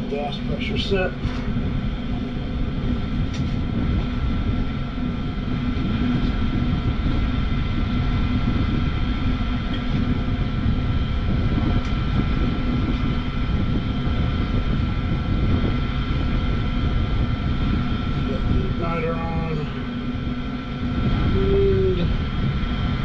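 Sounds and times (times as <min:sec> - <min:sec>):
faint steady whine: 0:00.0 - 0:23.0
gas furnace rumble: 0:00.0 - 0:23.0.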